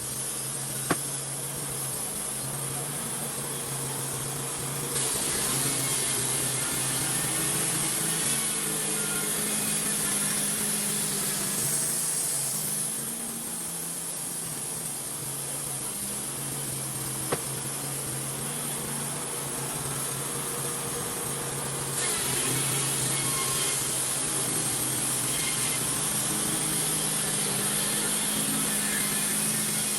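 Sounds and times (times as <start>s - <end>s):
band sawmill cutting log: 0.0s - 29.9s.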